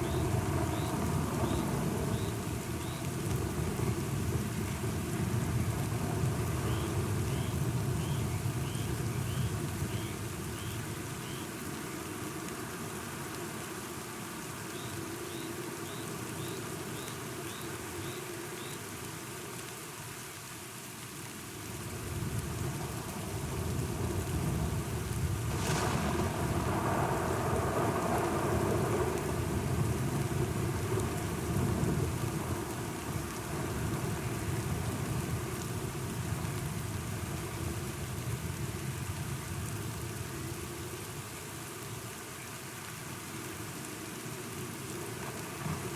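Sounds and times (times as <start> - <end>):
steady rain: 0.0 - 45.9
thunder rolling: 23.4 - 32.1
sharp thunderclap: 25.3 - 29.8.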